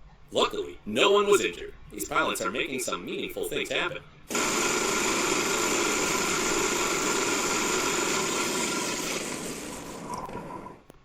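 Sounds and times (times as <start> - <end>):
aircraft engine with high whine: 4.3 - 10.8.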